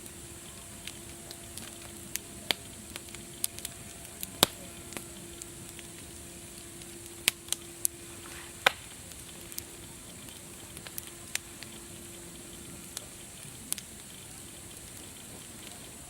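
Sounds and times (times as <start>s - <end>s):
steady high hiss: 0.0s - 16.0s
wood fire crackling: 0.0s - 16.0s.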